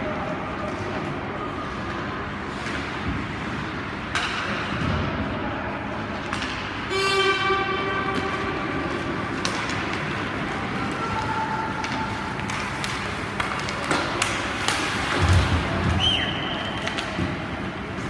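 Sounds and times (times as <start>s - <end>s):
ice rink background noise: 0.0s - 18.0s
loud buzzing horn: 6.9s - 8.5s.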